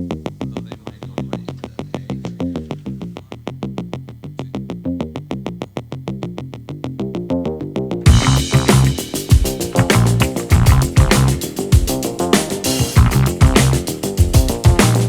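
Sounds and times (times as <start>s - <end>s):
electronic synthesizer music: 8.1s - 15.0s.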